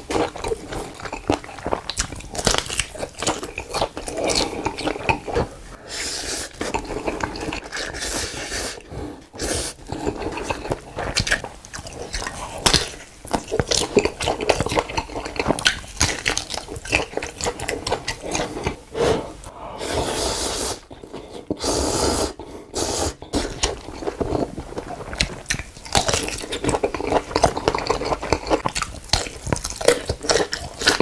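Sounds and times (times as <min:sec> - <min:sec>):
wet chewing and smacking: 0:00.0 - 0:05.6, 0:06.5 - 0:08.0, 0:09.7 - 0:18.8, 0:23.2 - 0:31.0
slurping: 0:02.8 - 0:31.0.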